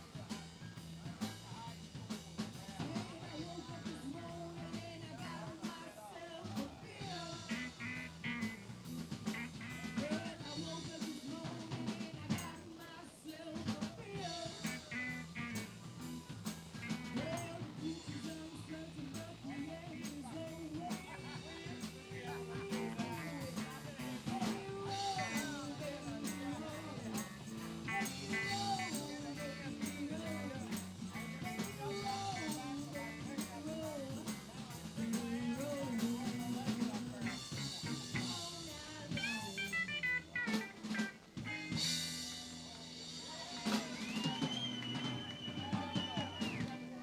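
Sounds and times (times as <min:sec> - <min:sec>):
live blues band playing: 0:00.0 - 0:05.8, 0:06.5 - 0:47.0
drum kit: 0:00.0 - 0:47.0
guitar bending notes: 0:39.1 - 0:42.5.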